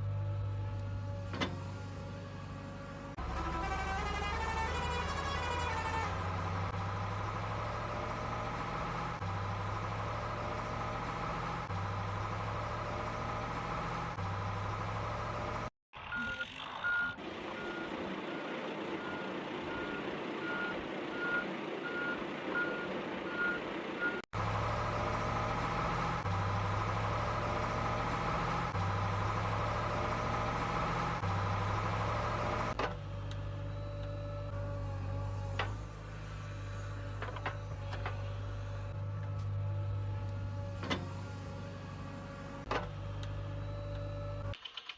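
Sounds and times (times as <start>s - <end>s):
heavy vehicle engine drone: 0.0s - 44.6s
reversing alarm beeping: 16.1s - 24.2s.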